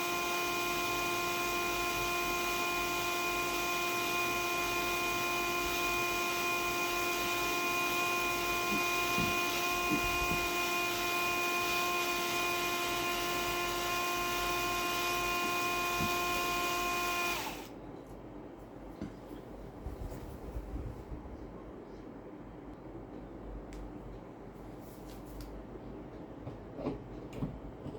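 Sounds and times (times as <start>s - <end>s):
electric drill motor whining: 0.0s - 17.7s.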